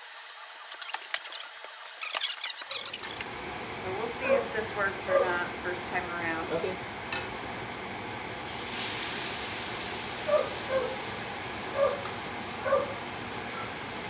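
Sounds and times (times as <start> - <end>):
batter frying in hot oil: 0.0 - 3.3, 8.2 - 14.0.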